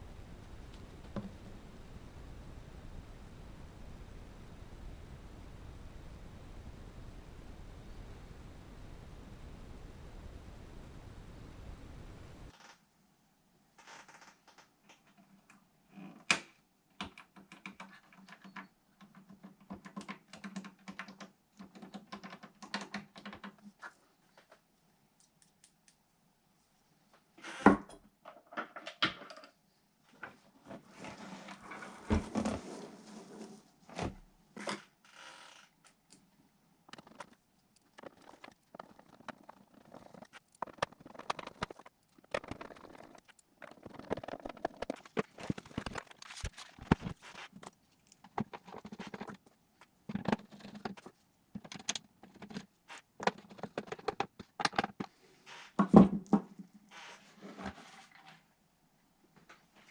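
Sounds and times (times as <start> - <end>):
glitchy clicks and crackling bursts: 36.9 - 49.5.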